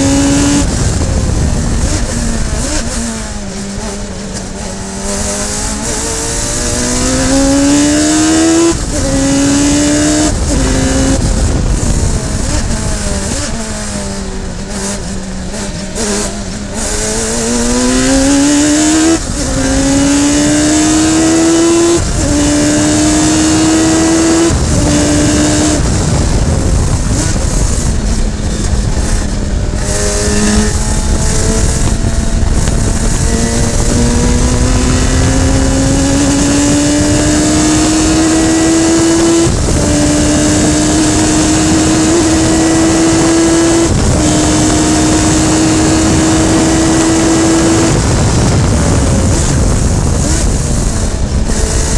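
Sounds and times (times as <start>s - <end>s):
racing car engine upshifting: 0.0s - 51.9s.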